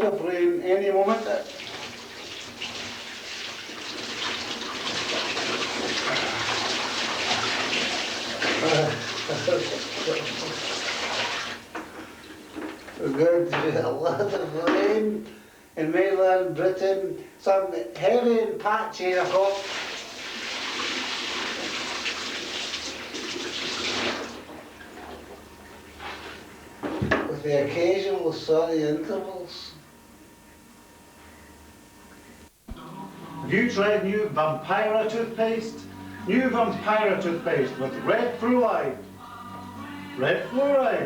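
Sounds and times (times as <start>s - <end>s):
water running into bathtub: 1.0s - 13.2s, 19.1s - 27.3s.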